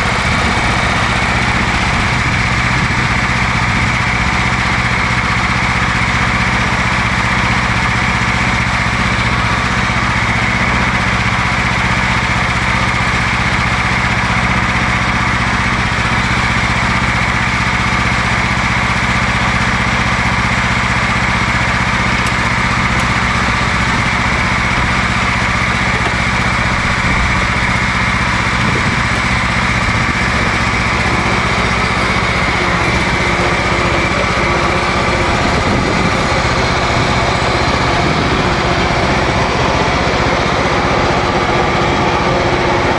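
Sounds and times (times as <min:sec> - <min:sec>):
lawn tractor engine running: 0:00.0 - 0:42.9.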